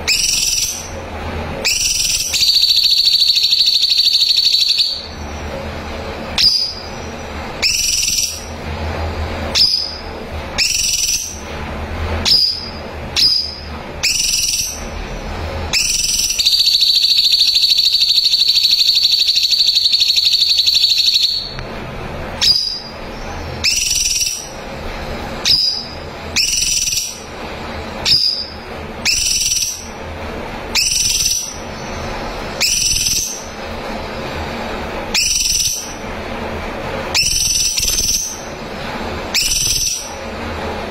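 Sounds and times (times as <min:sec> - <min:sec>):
loud buzzing bird trill: 0:00.0 - 0:01.0, 0:01.6 - 0:05.4, 0:06.4 - 0:08.6, 0:09.5 - 0:11.5, 0:12.2 - 0:21.6, 0:22.4 - 0:24.6, 0:25.4 - 0:27.3, 0:28.0 - 0:30.0, 0:30.7 - 0:33.6, 0:35.1 - 0:36.0, 0:37.1 - 0:38.6, 0:39.3 - 0:40.2
bird singing sharp high notes: 0:01.6 - 0:05.2, 0:12.3 - 0:14.9, 0:15.7 - 0:21.6, 0:22.4 - 0:23.0, 0:23.6 - 0:24.5.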